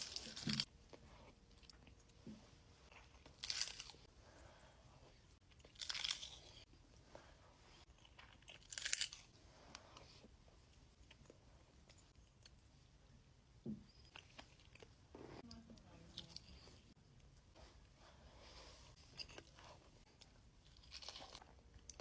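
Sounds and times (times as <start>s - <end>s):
person chewing crunchy food: 0.0s - 2.2s, 2.8s - 4.1s, 4.9s - 6.7s, 7.8s - 12.6s, 13.9s - 15.0s, 18.9s - 22.0s.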